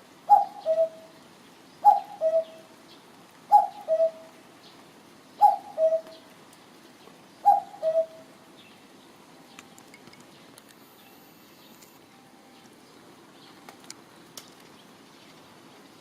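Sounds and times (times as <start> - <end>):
cuckoo calling: 0.3 - 1.2, 1.8 - 2.7, 3.5 - 4.4, 5.4 - 6.3, 7.4 - 8.3.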